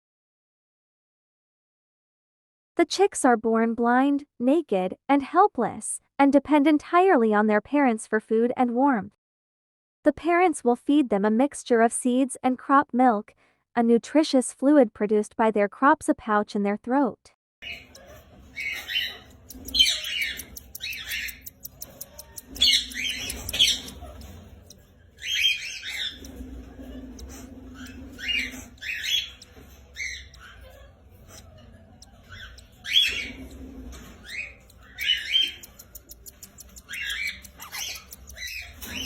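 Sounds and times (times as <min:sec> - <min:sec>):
cockatiels squawking: 0:17.6 - 0:39.0.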